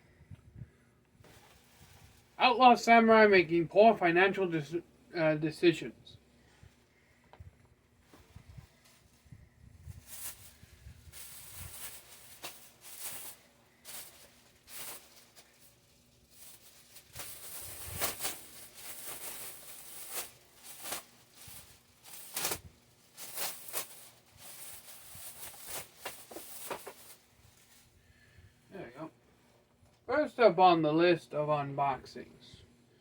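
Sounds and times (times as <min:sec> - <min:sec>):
plastic and cardboard rustling: 0:01.2 - 0:02.4, 0:08.0 - 0:28.0
packaging ripping: 0:11.2 - 0:27.2.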